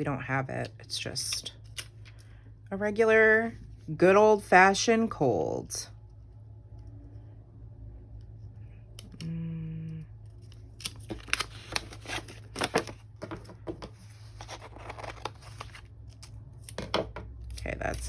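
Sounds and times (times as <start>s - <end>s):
paper rustling: 10.9s - 15.9s
scissors snipping paper: 17.4s - 18.0s.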